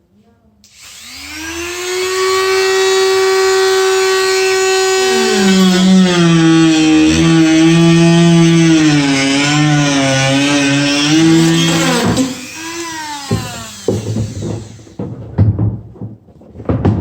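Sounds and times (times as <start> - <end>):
power tool cutting plastic: 0.7 - 15.1
knocks: 11.1 - 17.0.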